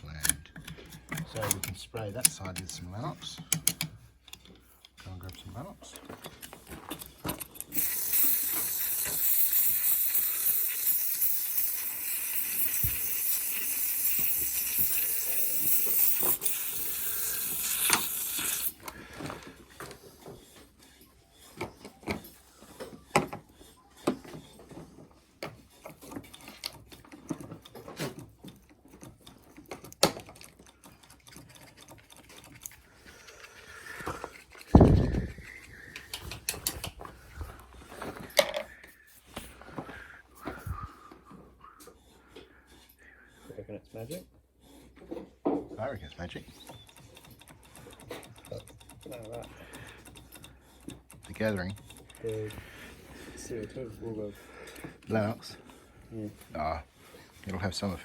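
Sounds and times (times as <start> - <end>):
handling clicks and knocks: 0.0 - 7.8, 21.5 - 33.4
aerosol spray hissing: 7.7 - 18.8.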